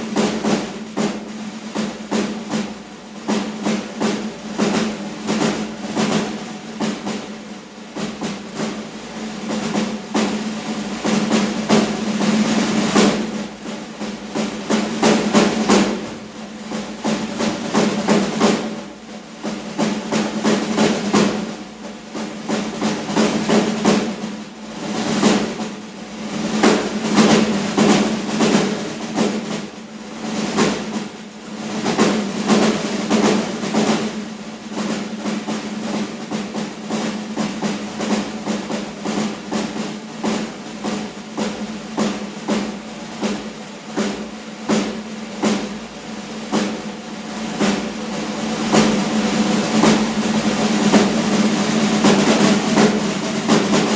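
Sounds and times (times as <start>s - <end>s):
snare drum rolls: 0.0s - 53.9s.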